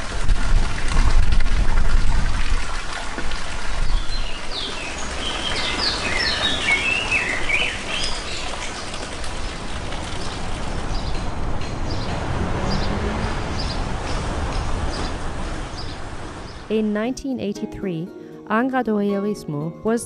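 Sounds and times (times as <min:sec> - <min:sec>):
bird chirping: 0:04.0 - 0:08.5.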